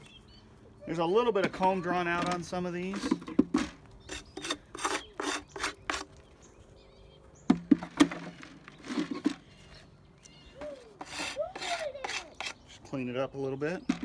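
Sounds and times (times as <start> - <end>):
scraping on wooden frames: 10.6 - 12.6.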